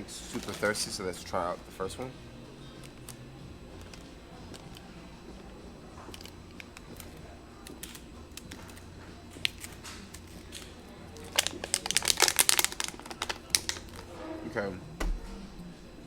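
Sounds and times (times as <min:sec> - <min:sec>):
plastic water bottle crackling: 0:09.4 - 0:14.1.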